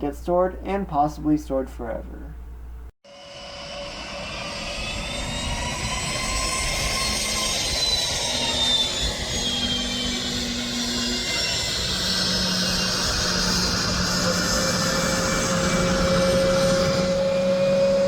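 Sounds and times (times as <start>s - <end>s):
jet engine whine: 3.0s - 18.0s.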